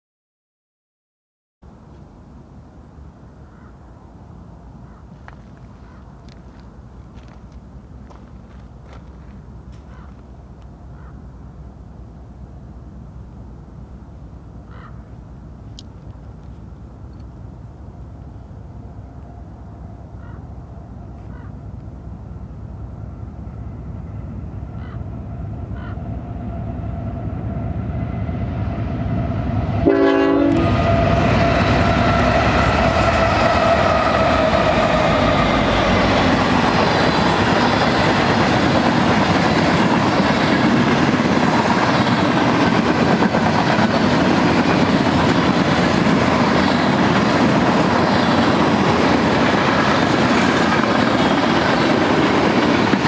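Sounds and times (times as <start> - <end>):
freight train passing: 1.7 - 53.0
clickety-clack of boxcars: 5.2 - 10.7, 36.2 - 53.0
train horn blast: 29.0 - 36.1.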